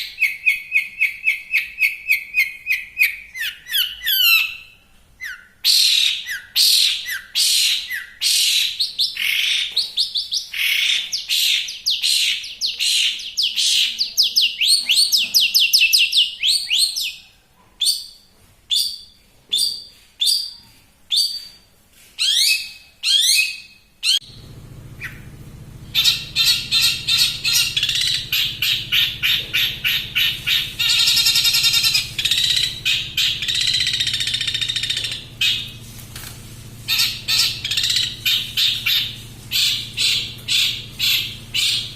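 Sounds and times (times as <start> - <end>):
bird whistled song: 0.0 - 21.6, 22.2 - 24.4, 25.0 - 25.3, 25.9 - 35.8, 36.9 - 41.9
low hum: 24.2 - 41.9
rapid chattering notes: 24.2 - 41.9.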